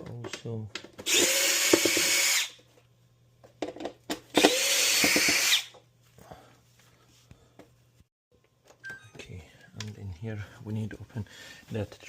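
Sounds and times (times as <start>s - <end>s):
power drill motor spinning: 1.0s - 2.6s, 4.3s - 5.8s.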